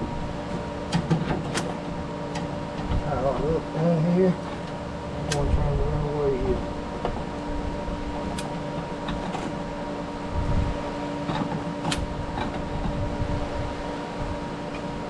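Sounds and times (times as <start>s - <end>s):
machine hum: 0.0s - 15.0s
low rumble: 10.2s - 10.9s.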